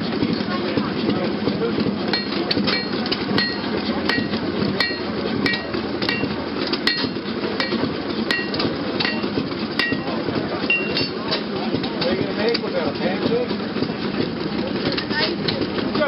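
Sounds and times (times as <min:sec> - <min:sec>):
low rumble of engines: 0:00.0 - 0:16.0
hammer striking steel on anvil: 0:02.1 - 0:10.1, 0:10.7 - 0:11.2.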